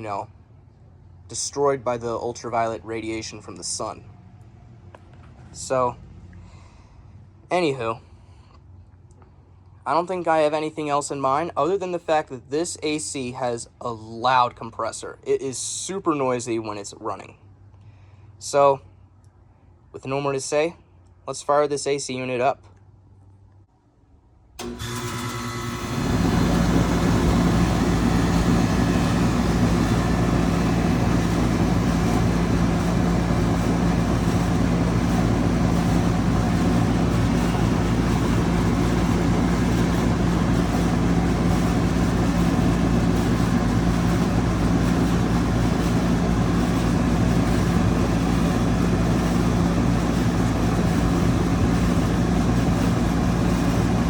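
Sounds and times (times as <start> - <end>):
air conditioner compressor hum: 24.5 - 54.0
condenser fan whoosh: 24.6 - 54.0.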